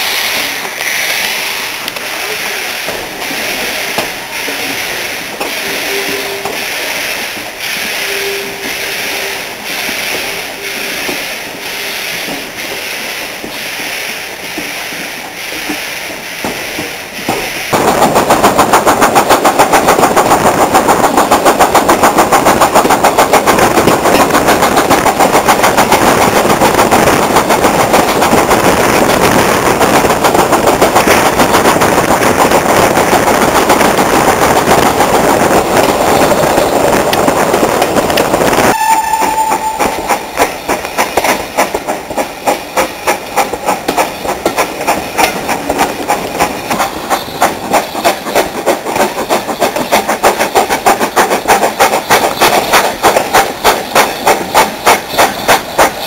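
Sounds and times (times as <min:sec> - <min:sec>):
steam locomotive exhaust beats: 0:00.0 - 0:56.0.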